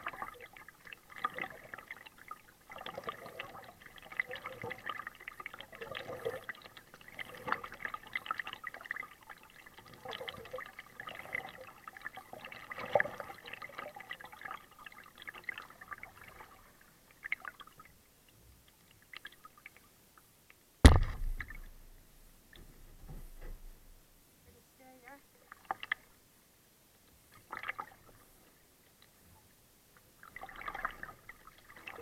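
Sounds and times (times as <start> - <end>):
paddle water splashing and dripping: 0.0 - 24.2, 25.4 - 26.2, 26.9 - 29.2, 29.9 - 32.0
sharp knock with dull thud: 20.8 - 21.7.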